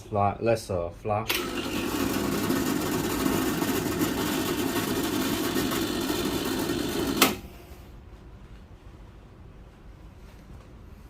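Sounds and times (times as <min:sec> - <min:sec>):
espresso machine pump humming: 0:01.3 - 0:07.4.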